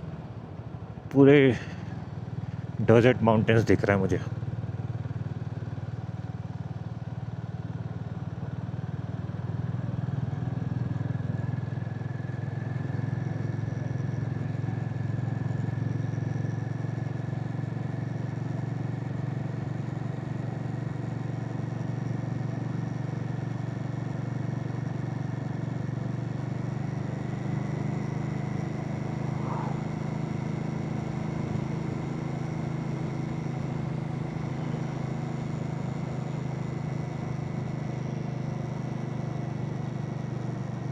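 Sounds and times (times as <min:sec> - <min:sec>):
motorcycle engine cruising: 0:08.6 - 0:40.7.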